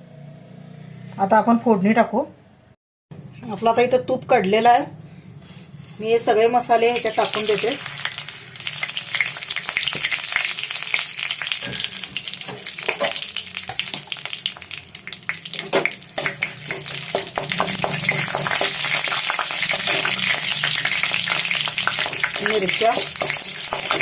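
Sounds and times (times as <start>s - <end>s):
spices sizzling in hot oil: 5.7s - 24.0s
stirring: 15.0s - 24.0s.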